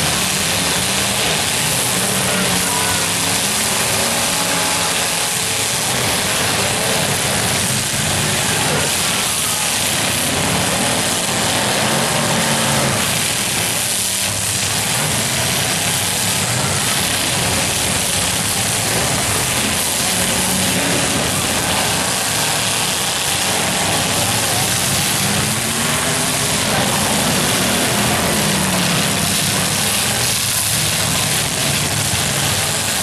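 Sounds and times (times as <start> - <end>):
car engines running: 0.0 - 33.0.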